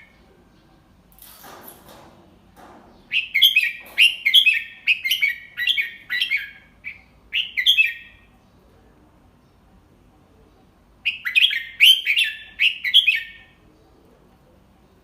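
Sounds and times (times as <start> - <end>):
bulbul chirping song: 3.0 - 8.4, 11.0 - 13.6.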